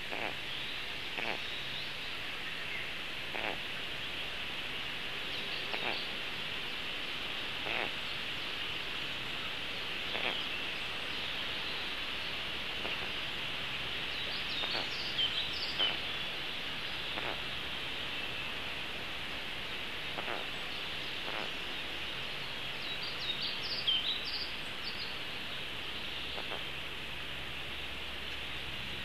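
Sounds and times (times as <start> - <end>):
bird calls: 0.0 - 4.3, 5.3 - 6.8, 7.5 - 8.8, 10.0 - 13.3, 14.0 - 18.6, 20.0 - 26.9
steady hiss: 0.0 - 29.0.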